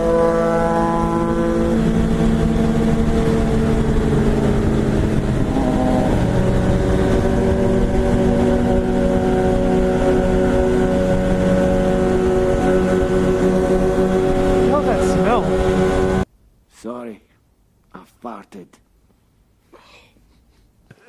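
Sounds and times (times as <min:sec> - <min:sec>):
motorcycle engine running: 0:00.0 - 0:16.2
wind rushing over microphone: 0:00.0 - 0:16.2.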